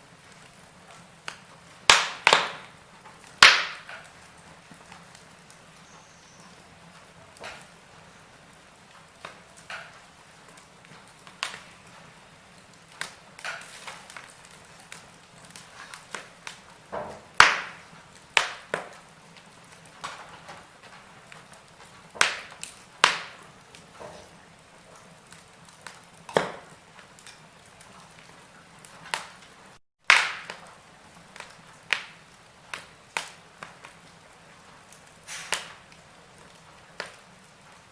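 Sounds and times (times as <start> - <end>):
faint steady hiss: 0.0 - 29.8
wood fire popping and snapping: 0.0 - 37.9.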